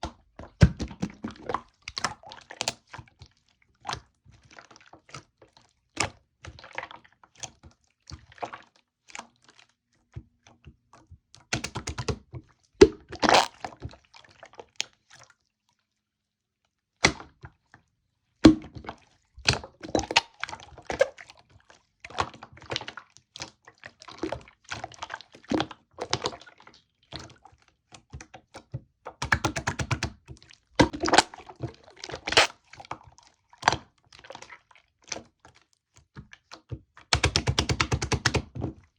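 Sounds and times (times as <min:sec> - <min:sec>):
air-bubble pops: 0:13.2 - 0:13.5
slime squished by hand: 0:13.2 - 0:13.6, 0:32.2 - 0:32.5.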